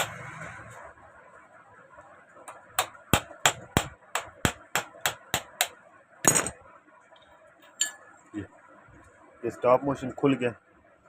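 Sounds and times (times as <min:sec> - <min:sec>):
hammer tapping metal nail: 0:02.5 - 0:06.5.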